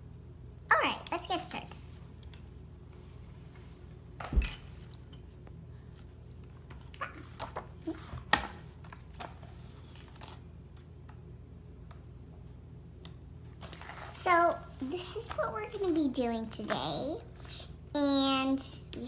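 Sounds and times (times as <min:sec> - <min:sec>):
object knocking down: 0:04.2 - 0:04.8.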